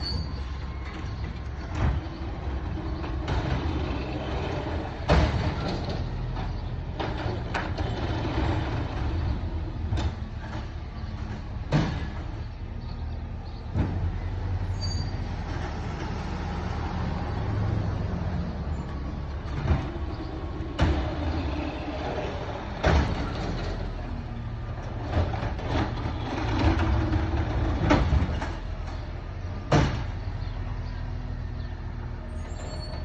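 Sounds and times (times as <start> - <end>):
metal clanks and knocks: 0.0 - 9.2, 9.8 - 12.6, 19.3 - 24.2
diesel engine rumbling: 0.0 - 33.0.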